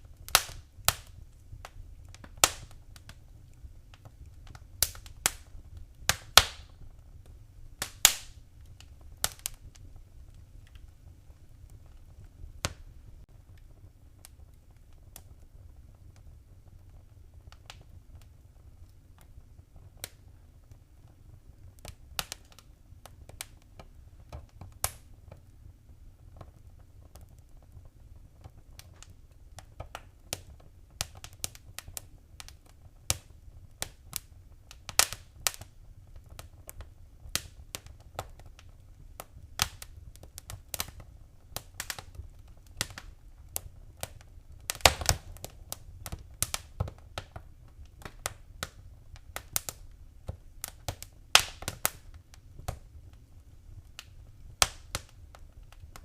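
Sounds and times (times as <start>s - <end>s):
low fire rumble: 0.0s - 56.0s
wood fire crackling and popping: 0.0s - 56.0s.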